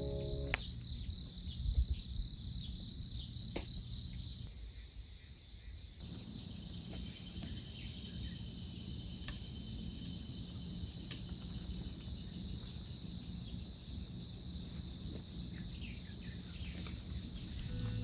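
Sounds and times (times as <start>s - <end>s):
faint chirps: 0.0s - 2.1s, 15.5s - 18.0s
crickets trilling: 0.0s - 18.0s.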